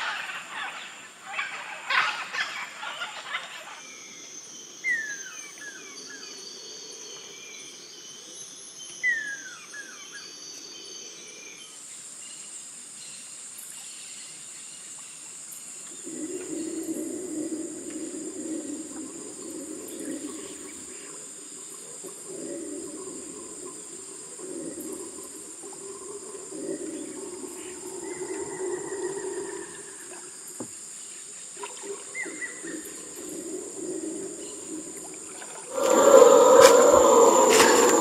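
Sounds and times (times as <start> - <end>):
high-pitched insect drone: 35.6 - 38.0
low wavering chorus: 35.6 - 38.0.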